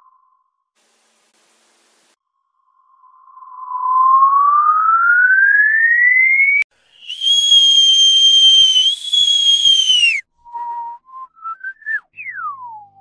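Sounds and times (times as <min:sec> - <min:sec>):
short rising whistle notes: 0:02.8 - 0:13.0
whistle gliding down: 0:02.8 - 0:13.0
high whistle: 0:03.0 - 0:13.0.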